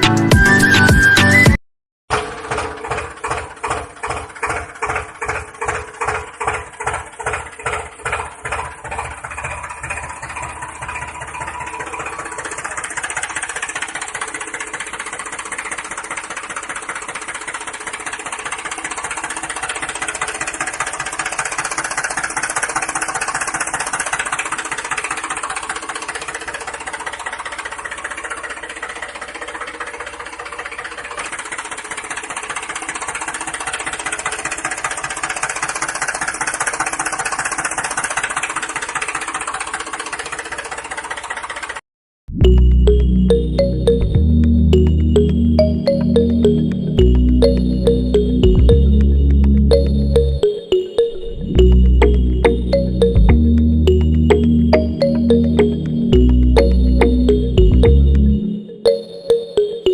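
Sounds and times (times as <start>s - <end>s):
small engine chugging: 2.1s - 41.8s.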